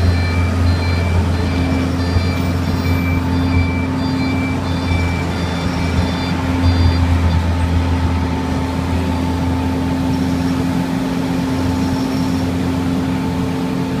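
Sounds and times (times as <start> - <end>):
reversing alarm beeping: 0.0 - 8.7
road planer engine hum: 0.0 - 14.0.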